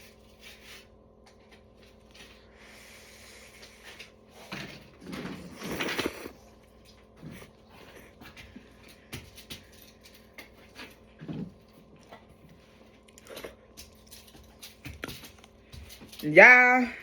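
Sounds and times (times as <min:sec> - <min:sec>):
chewing mouth noises: 0:13.0 - 0:14.6
small eating clicks: 0:13.0 - 0:16.4.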